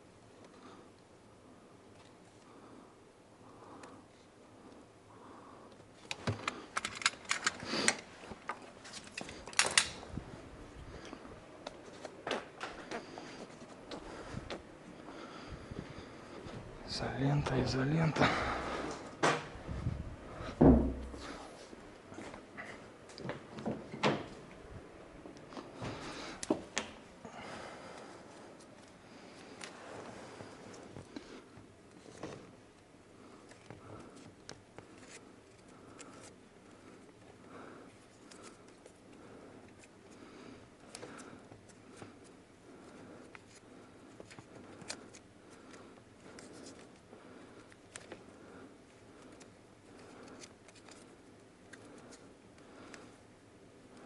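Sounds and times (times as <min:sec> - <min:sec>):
electrical tape rustling: 0:03.6 - 0:54.0
small clicks of wiring work: 0:05.7 - 0:10.0.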